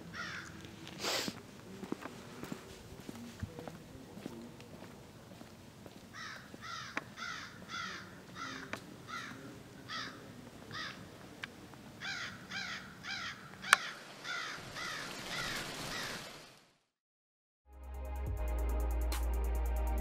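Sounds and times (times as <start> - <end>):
harsh bird calls: 6.1 - 11.1, 12.0 - 16.4.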